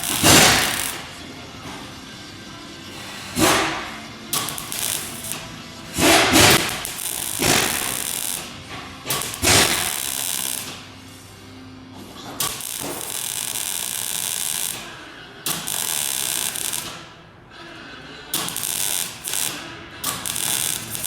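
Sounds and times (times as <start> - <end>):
shop tool bursts: 0.0 - 1.1, 3.1 - 10.9, 12.4 - 17.2, 18.3 - 21.0.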